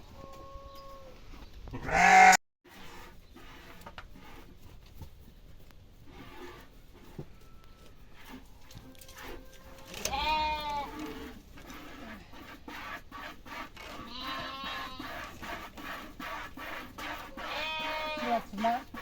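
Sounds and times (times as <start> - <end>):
goat bleating: 1.8 - 2.4, 9.6 - 11.4, 14.0 - 15.2, 17.4 - 18.5.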